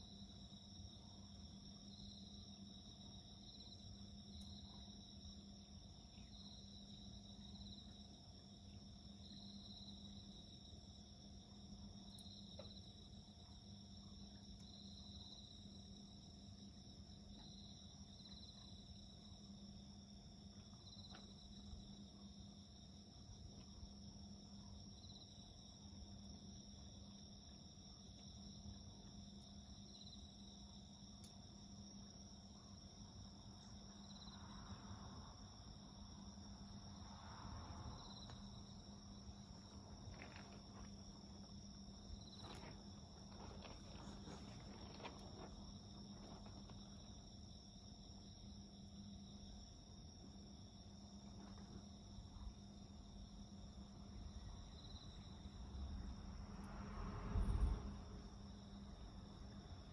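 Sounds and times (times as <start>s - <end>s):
crickets chirring: 0.0s - 59.9s
insects trilling: 0.0s - 59.9s
wood fire crackling: 38.2s - 47.3s.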